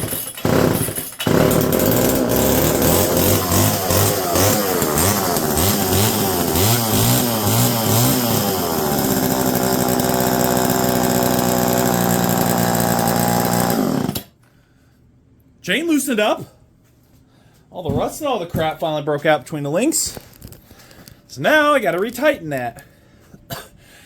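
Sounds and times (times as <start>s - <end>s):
chainsaw revving: 0.0s - 14.3s.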